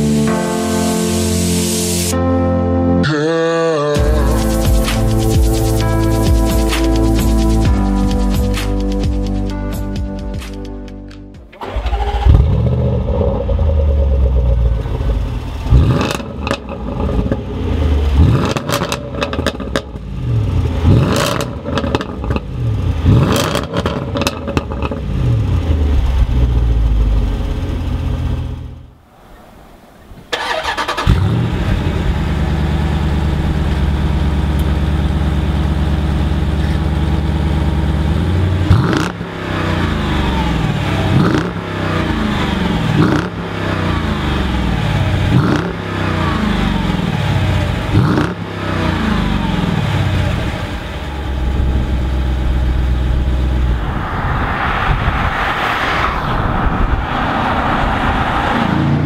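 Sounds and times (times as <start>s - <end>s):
car engine starting: 4.0s - 59.0s
car engine idling: 11.6s - 23.2s, 23.8s - 29.2s, 29.8s - 54.3s
second car engine revving: 11.6s - 28.8s, 30.3s - 59.0s
car engine revving: 11.6s - 59.0s.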